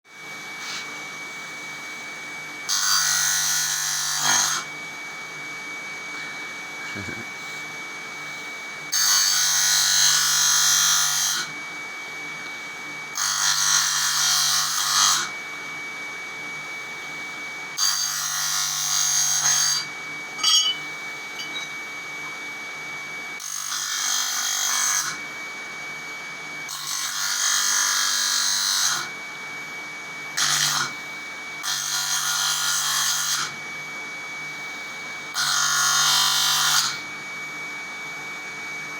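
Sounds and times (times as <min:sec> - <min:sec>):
grinder motor humming: 0:06.1 - 0:08.3, 0:18.8 - 0:22.6
workpiece grinding on wheel: 0:20.4 - 0:21.8.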